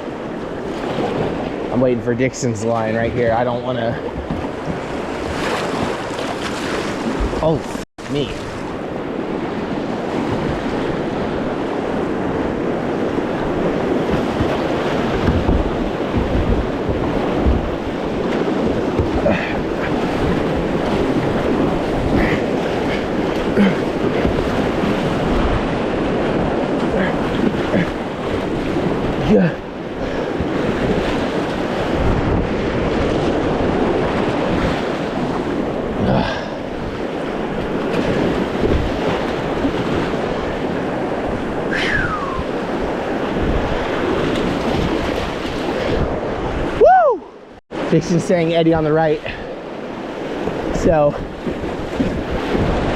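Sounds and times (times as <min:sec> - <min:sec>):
wind noise on microphone: 0:02.7 - 0:48.0, 0:49.2 - 0:52.9
whitewater rushing: 0:09.4 - 0:32.4, 0:41.5 - 0:47.3.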